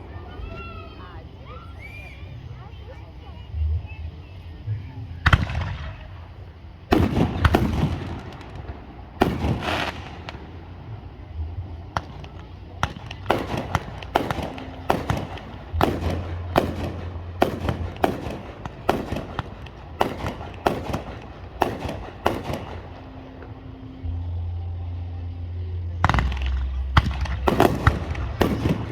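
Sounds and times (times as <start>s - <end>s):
fireworks crackling: 4.3s - 24.3s, 26.0s - 28.9s
fireworks bangs: 5.2s - 24.0s, 26.0s - 28.9s.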